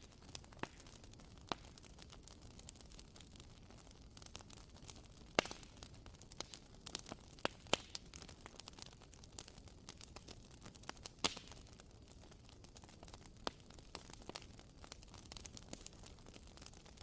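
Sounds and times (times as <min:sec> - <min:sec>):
wooden candle wick crackling: 0:00.0 - 0:17.0.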